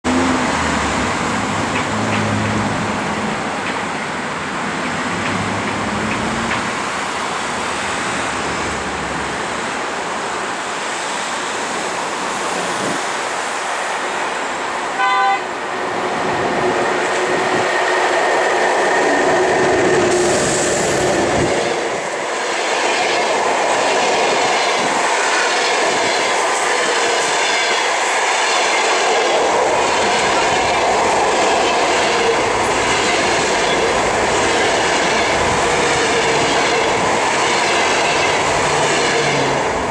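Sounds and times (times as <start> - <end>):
train rolling rumble: 0.0 - 39.9
wheels clacking over rail joints: 0.1 - 7.4
train horn blast: 14.9 - 15.6, 29.8 - 30.8, 31.5 - 39.6.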